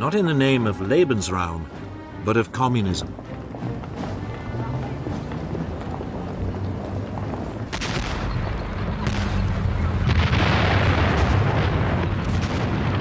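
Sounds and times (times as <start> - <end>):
continuous low rumble: 0.0 - 13.0
artillery booms: 7.7 - 13.0
gunfire: 7.7 - 13.0.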